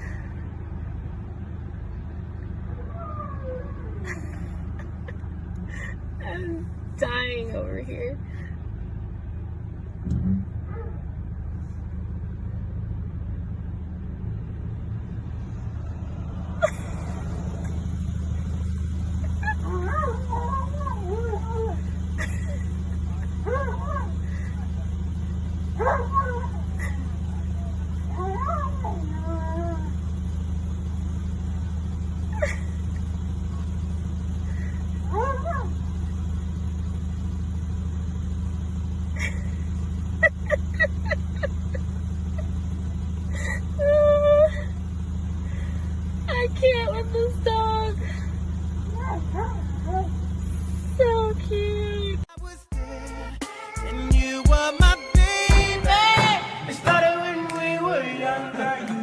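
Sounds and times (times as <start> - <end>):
vehicle engine rumble: 0.0 - 59.0
bump: 55.5 - 57.8.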